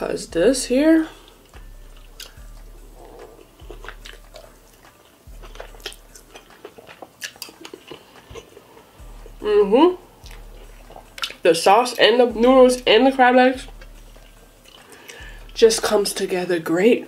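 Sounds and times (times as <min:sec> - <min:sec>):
close-up chewing of noodles: 0:01.1 - 0:11.5, 0:13.6 - 0:15.6
wet mouth clicks and smacks: 0:02.1 - 0:02.4, 0:10.2 - 0:11.4.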